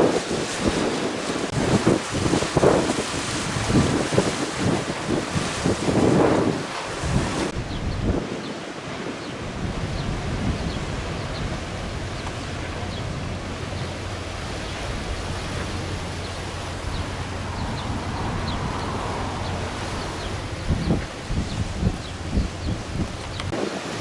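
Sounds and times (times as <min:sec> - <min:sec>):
strong wind blowing: 0:00.0 - 0:24.0
wind rumbling on microphone: 0:00.0 - 0:24.0.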